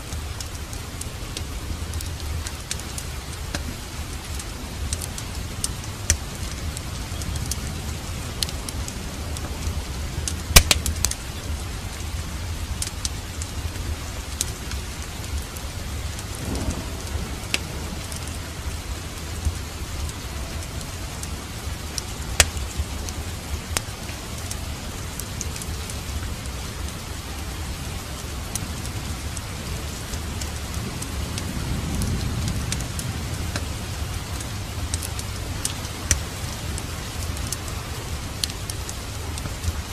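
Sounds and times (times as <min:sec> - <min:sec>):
fireplace fire crackling: 0:00.0 - 0:39.9
steady rain: 0:00.0 - 0:39.9
low rumble: 0:16.0 - 0:25.2.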